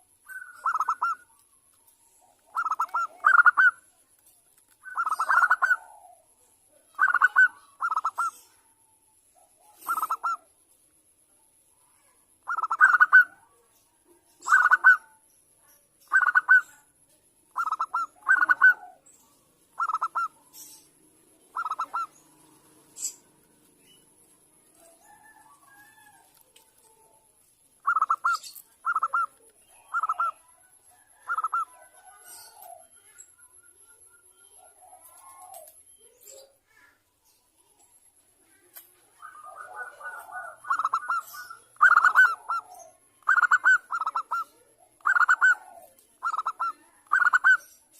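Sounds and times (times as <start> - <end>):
dove cooing: 0.0 - 1.4, 2.1 - 3.8, 4.8 - 8.7, 9.5 - 10.5, 12.4 - 13.5, 14.4 - 15.2, 16.1 - 16.8, 17.5 - 19.1, 19.7 - 23.4, 24.8 - 27.2, 27.8 - 33.2, 34.6 - 35.8, 38.6 - 47.7.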